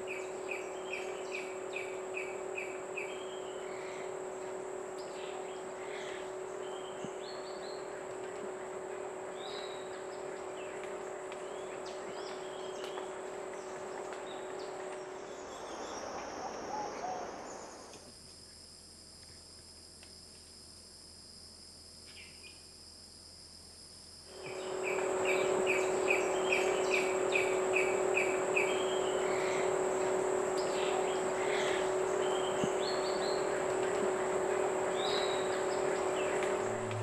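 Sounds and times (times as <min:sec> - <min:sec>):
high drone of insects: 0:00.0 - 0:37.0
steady background hiss: 0:21.2 - 0:37.0.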